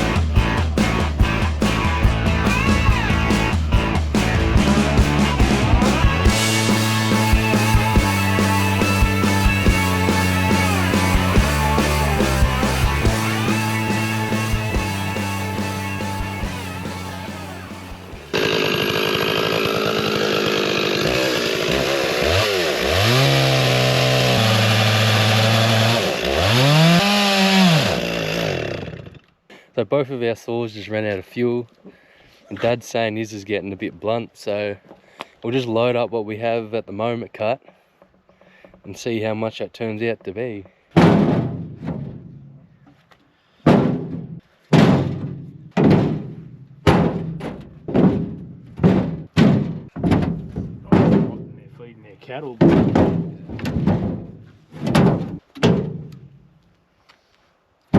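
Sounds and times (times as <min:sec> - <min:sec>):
chainsaw cutting wood: 0:04.1 - 0:29.3
logs landing with heavy thunk: 0:40.9 - 0:51.6, 0:52.6 - 0:56.6.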